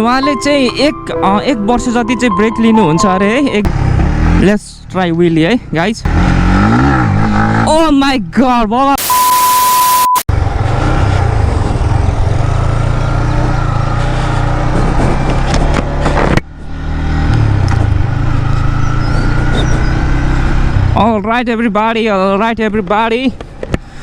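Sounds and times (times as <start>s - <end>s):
motorcycle engine running: 3.6s - 4.5s, 10.3s - 20.9s
short beep: 9.0s - 10.2s.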